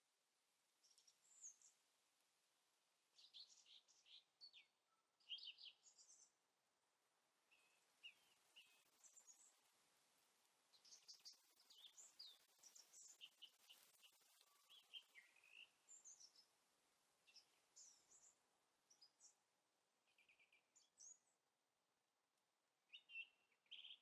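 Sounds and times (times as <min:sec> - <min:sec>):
quiet background hiss: 0:00.0 - 0:24.0
small birds chirping: 0:00.8 - 0:01.8, 0:03.1 - 0:06.8, 0:07.4 - 0:21.6, 0:22.8 - 0:24.0.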